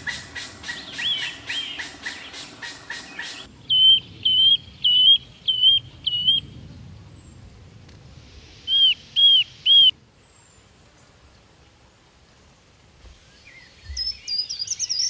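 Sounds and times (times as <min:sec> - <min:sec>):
bird whistling calls: 0:00.0 - 0:05.8.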